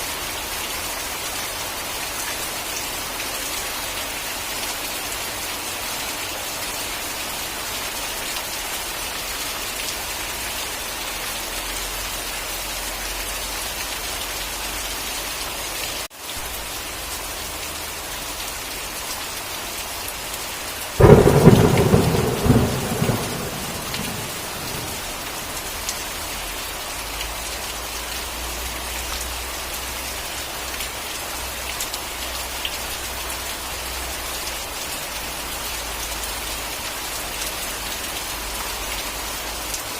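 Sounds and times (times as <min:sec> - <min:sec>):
steady rain: 0:00.0 - 0:39.9
thunderclap: 0:21.0 - 0:25.2.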